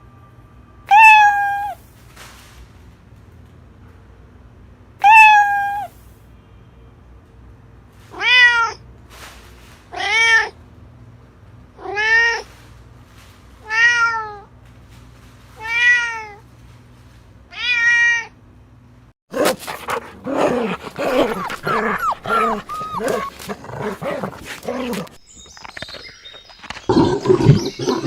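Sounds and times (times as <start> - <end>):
cat meowing: 0.9 - 1.8, 5.0 - 5.9, 20.2 - 25.1.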